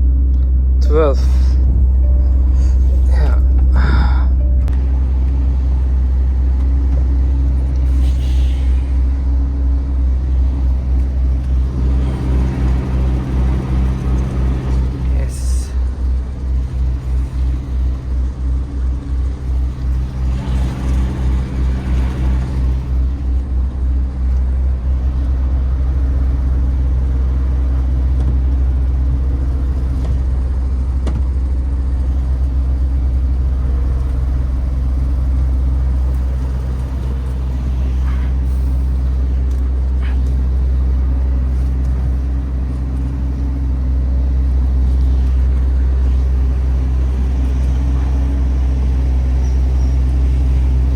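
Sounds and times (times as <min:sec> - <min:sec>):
diesel truck engine humming: 0:00.0 - 0:50.9.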